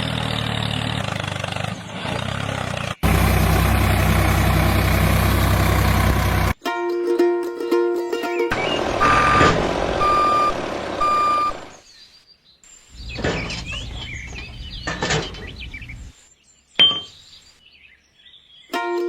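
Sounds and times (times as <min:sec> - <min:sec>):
steady vehicle noise: 0:00.0 - 0:06.6, 0:08.5 - 0:11.9, 0:12.9 - 0:16.2
vehicle reversing alarm beeping: 0:08.6 - 0:11.8
bird-like chirps: 0:11.2 - 0:18.8.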